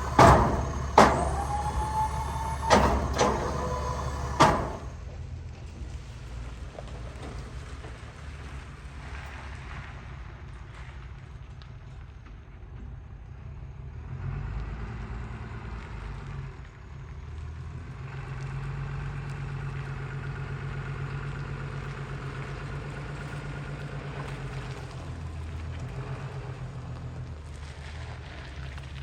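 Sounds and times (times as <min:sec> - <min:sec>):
vehicle engine humming: 0:00.0 - 0:05.1.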